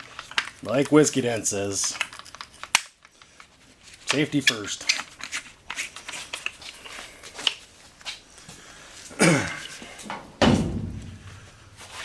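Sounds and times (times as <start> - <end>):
handling clicks and rustles: 9.0 - 12.0.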